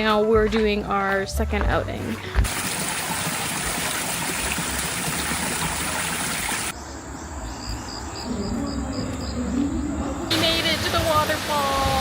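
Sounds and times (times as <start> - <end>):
water rushing: 2.4 - 6.7, 10.3 - 12.0
insect chirping: 6.7 - 11.4.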